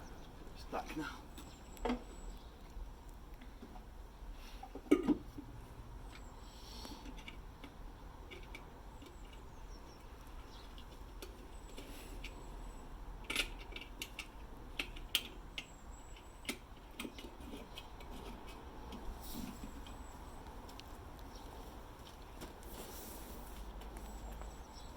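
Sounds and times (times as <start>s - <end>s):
small metallic clicks and taps: 6.1s - 12.4s, 13.2s - 20.0s.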